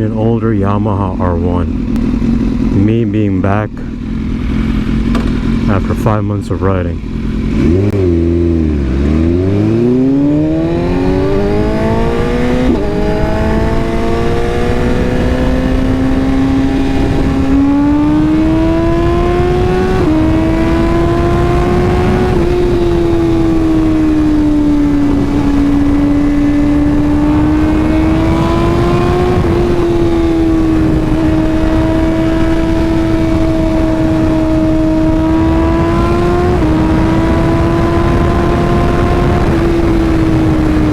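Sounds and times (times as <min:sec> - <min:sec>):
motorcycle engine accelerating: 0:00.0 - 0:40.9
wind rush: 0:07.4 - 0:40.9.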